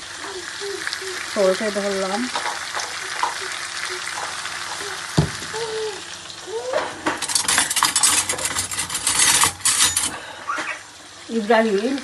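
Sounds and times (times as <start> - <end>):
spices sizzling in oil: 0.0 - 12.0
metal utensil scraping pot: 7.2 - 10.2
utensil clinks: 7.2 - 10.2.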